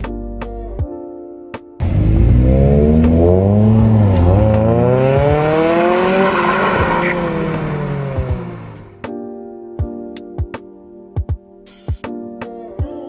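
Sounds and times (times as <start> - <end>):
car engine revving: 1.8 - 9.0.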